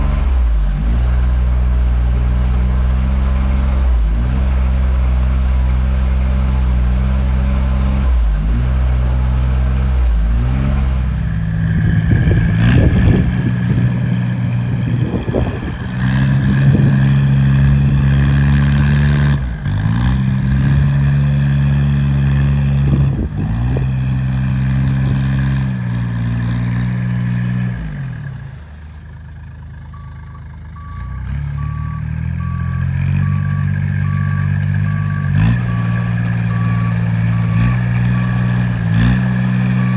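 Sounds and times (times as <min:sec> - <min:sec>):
off-road engine labouring: 0:00.0 - 0:39.9
reversing alarm beeping: 0:11.2 - 0:19.4, 0:29.8 - 0:39.9.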